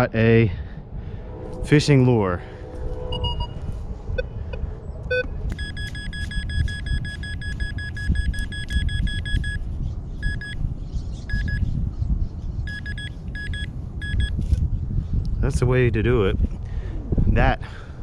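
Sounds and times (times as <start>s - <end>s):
wind rumble on microphone: 0.0s - 18.0s
metal detector tone and beeps: 3.1s - 3.6s, 5.1s - 9.6s, 10.2s - 10.6s, 11.3s - 11.6s, 12.7s - 14.4s.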